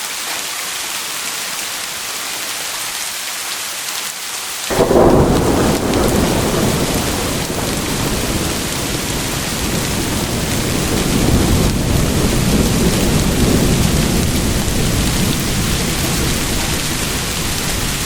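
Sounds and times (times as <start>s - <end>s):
heavy rain hissing: 4.2s - 18.0s
thunder rumbling: 4.7s - 18.0s.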